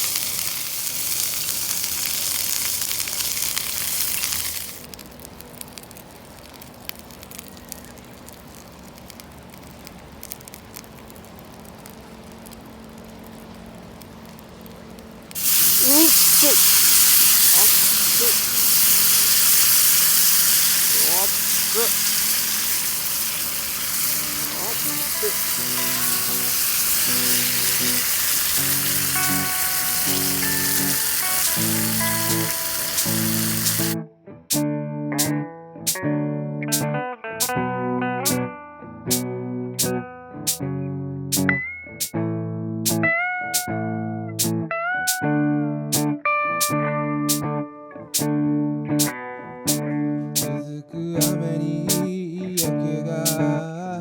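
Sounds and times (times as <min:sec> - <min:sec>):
loud hiss: 0:00.0 - 0:04.9, 0:15.4 - 0:34.0
campfire crackling: 0:00.0 - 0:34.0
food sizzling: 0:00.0 - 0:34.0, 0:52.6 - 0:53.4
strummed guitar: 0:15.4 - 0:54.0.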